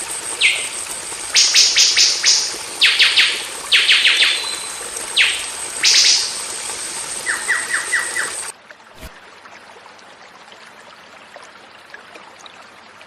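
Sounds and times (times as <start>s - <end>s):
songbird whistled notes: 1.4s - 6.4s.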